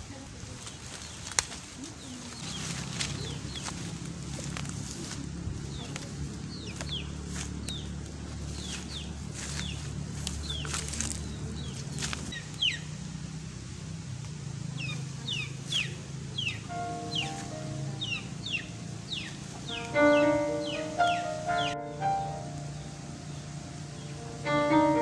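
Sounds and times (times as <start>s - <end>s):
leaves being picked by hand: 0.0s - 12.7s, 16.8s - 18.1s, 18.9s - 22.7s
bird chirping: 2.0s - 4.5s, 5.6s - 13.0s, 14.7s - 25.0s
low steady hum: 13.5s - 25.0s.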